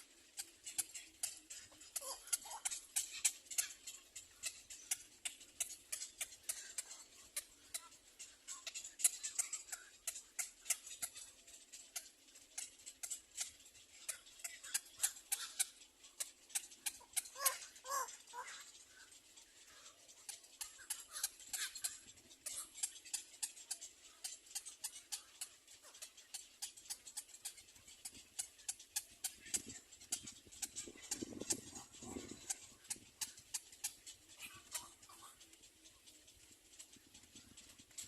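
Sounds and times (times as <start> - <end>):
birds clicking: 0.0 - 38.0
bird call: 14.0 - 27.4.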